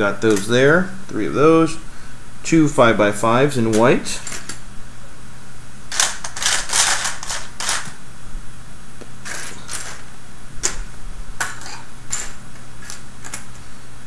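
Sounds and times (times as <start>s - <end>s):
plastic parts clicking and rattling: 5.9s - 8.0s, 9.2s - 10.0s.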